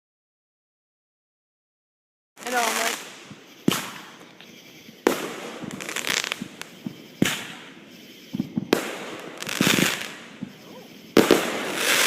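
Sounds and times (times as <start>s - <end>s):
fireworks bangs: 2.4s - 12.0s
fireworks crackling: 2.4s - 12.0s.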